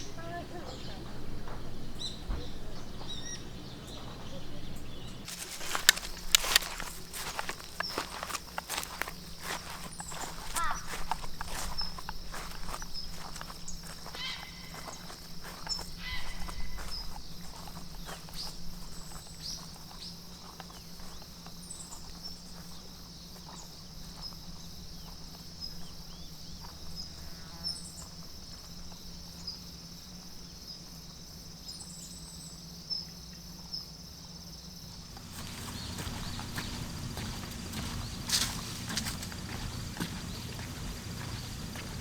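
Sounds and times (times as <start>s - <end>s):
insects buzzing high-pitched: 0.0s - 32.3s, 33.7s - 42.0s
low steady hum: 34.9s - 42.0s.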